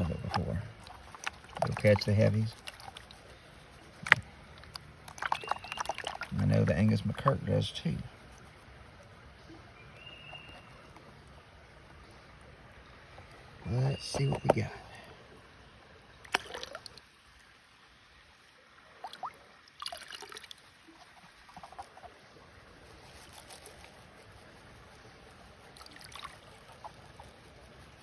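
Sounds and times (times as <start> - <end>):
water sloshing in a pan: 0.0 - 7.3
water splashes: 0.0 - 15.0, 16.1 - 28.0.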